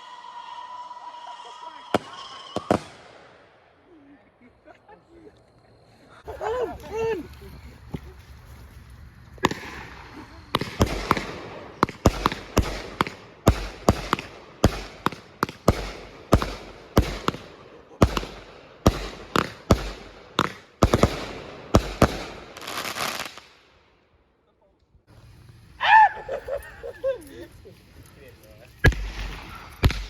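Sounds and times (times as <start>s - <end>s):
fireworks bangs: 0.0s - 3.8s, 9.0s - 23.8s, 25.1s - 30.0s
fireworks crackling and hissing: 0.0s - 4.8s, 5.4s - 24.1s, 25.0s - 30.0s.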